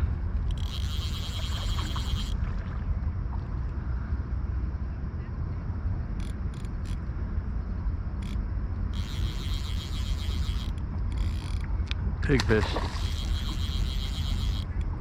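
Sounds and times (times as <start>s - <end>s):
constant low rumble: 0.0s - 15.0s
fly reel ratcheting: 0.4s - 2.4s, 6.2s - 7.0s, 8.2s - 11.7s, 12.4s - 15.0s.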